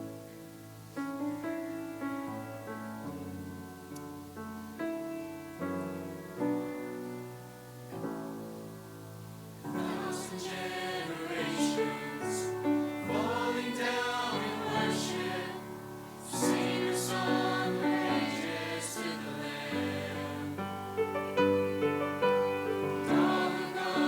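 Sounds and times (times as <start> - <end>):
choir singing in harmony: 9.6 - 21.6, 22.6 - 24.0.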